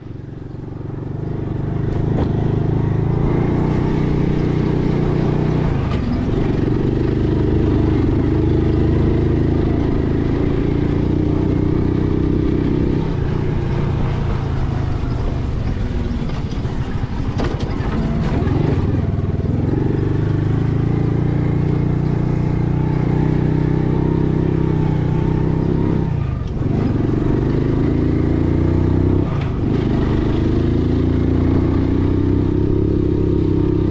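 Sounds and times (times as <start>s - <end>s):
vehicle engine running: 0.0s - 33.9s
knocks and rattles: 15.2s - 19.1s.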